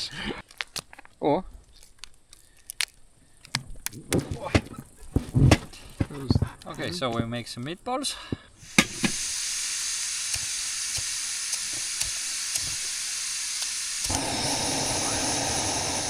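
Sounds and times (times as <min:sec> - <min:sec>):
meat sizzling in a pan: 0:08.6 - 0:16.0.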